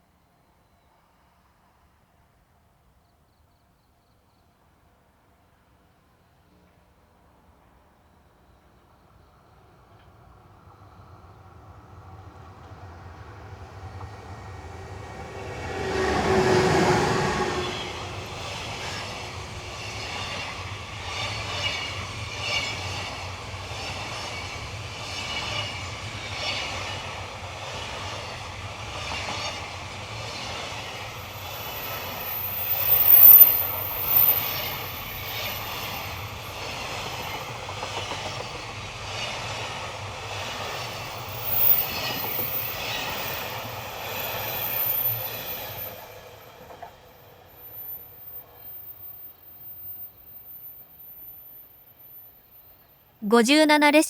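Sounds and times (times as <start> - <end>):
locomotive passing: 12.4 - 20.1.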